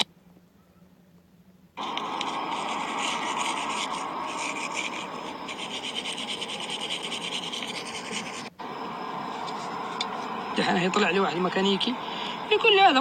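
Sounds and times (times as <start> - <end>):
rough noise of part being cleaned: 1.8 - 8.5.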